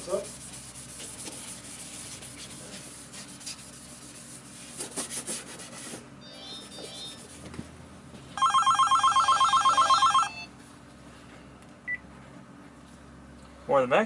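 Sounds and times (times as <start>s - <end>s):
desk telephone ringing: 8.4s - 10.5s.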